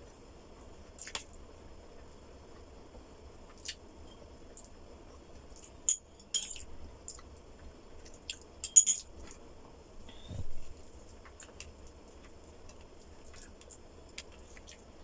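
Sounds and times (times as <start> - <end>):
chewing food: 3.4 - 3.8, 4.5 - 8.6, 10.8 - 15.0.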